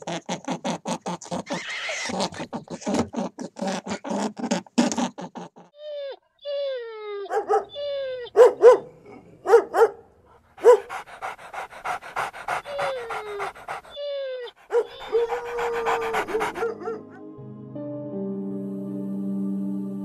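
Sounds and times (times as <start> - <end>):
dog whining: 5.3 - 8.8, 10.6 - 17.0
dog yipping: 5.8 - 8.9, 10.6 - 11.0, 11.8 - 17.0
dog panting: 10.3 - 17.0
soft music: 15.9 - 20.0.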